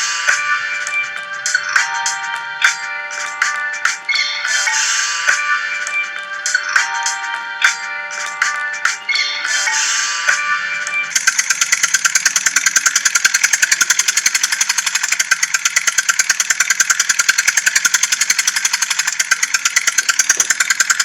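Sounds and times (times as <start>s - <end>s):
tractor engine clatter: 11.1s - 21.0s.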